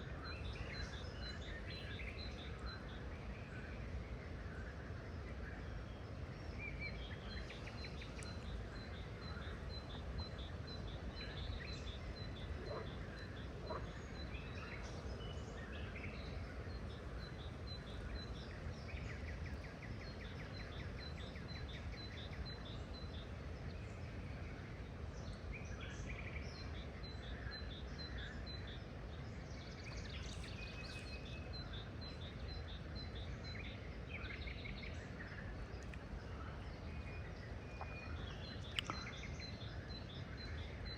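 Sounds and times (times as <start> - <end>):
wild birds chirping: 0.0 - 40.9.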